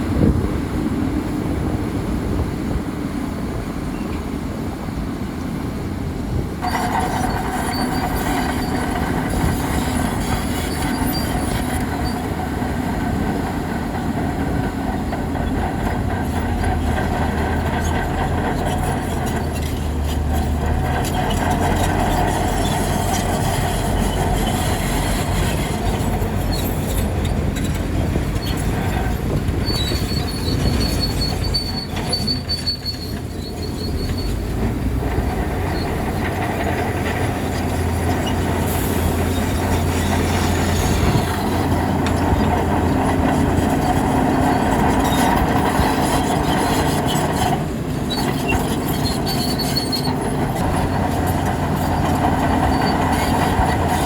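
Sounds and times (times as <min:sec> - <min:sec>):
diesel engine rumbling: 0:00.0 - 0:54.0
steel tracks clanking and squealing: 0:00.0 - 0:54.0
thin high-pitched squeal: 0:06.6 - 0:12.4, 0:28.4 - 0:34.4, 0:37.0 - 0:54.0.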